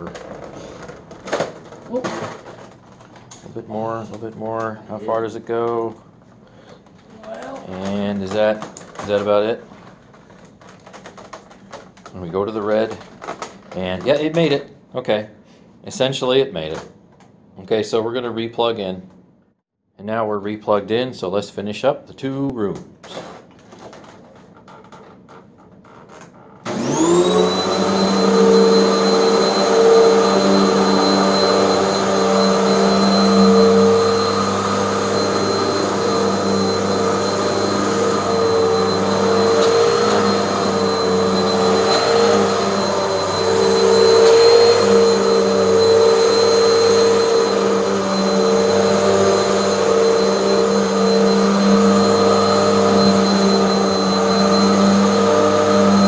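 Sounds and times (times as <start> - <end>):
vacuum cleaner motor whine: 26.6 - 56.0
high whistle: 27.5 - 56.0.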